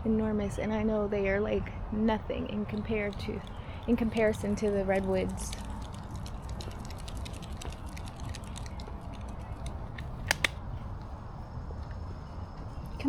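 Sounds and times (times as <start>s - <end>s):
low steady rumble: 0.0s - 13.0s
faint small clicks and ticks: 2.7s - 10.6s
sharp clicks: 2.7s - 10.6s.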